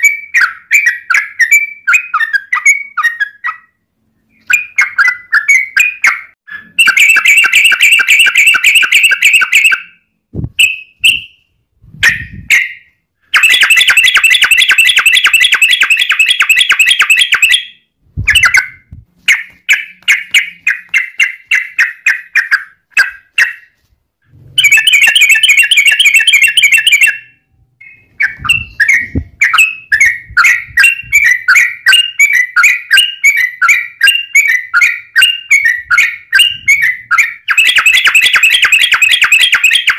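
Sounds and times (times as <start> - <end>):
bird singing rolling trills: 0.0 - 23.8, 24.6 - 39.9
bird chattering notes: 13.4 - 17.7, 27.8 - 39.9.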